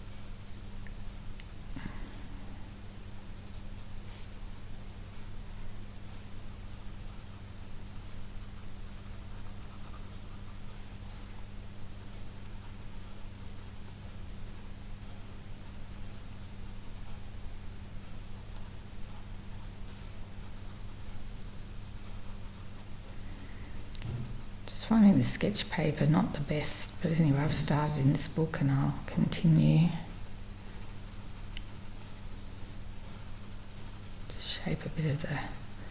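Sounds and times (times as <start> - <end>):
steady low hum: 0.0 - 35.9
pencil scratching on paper: 23.8 - 24.5, 27.1 - 35.9.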